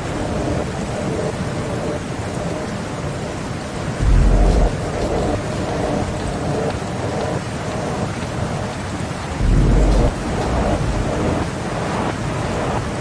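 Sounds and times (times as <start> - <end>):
steady rain: 0.0 - 13.0
rolling thunder: 4.0 - 7.0, 9.2 - 13.0.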